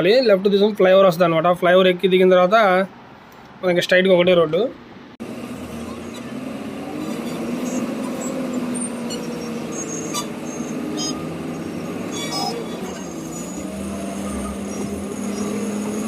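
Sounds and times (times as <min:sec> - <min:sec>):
truck engine running: 0:05.2 - 0:16.0.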